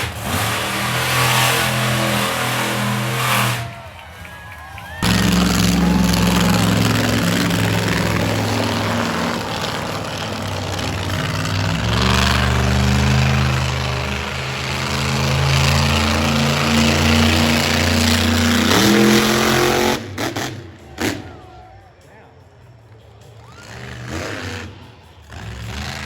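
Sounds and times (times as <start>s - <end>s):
large engine revving: 0.0s - 21.6s, 23.0s - 26.0s.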